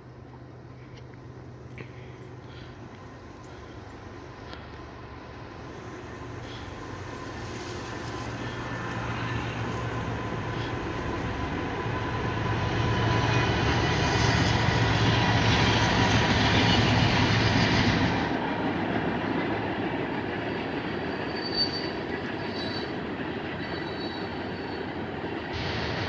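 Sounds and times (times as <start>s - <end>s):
freight train rumbling past: 0.0s - 26.0s
train wheels squealing: 6.4s - 18.1s, 20.4s - 25.0s.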